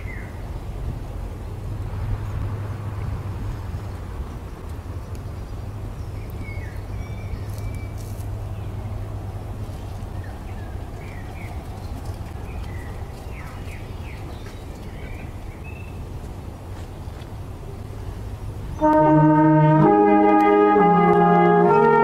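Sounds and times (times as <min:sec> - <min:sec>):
small birds chirping: 0:03.7 - 0:09.0, 0:09.6 - 0:17.3.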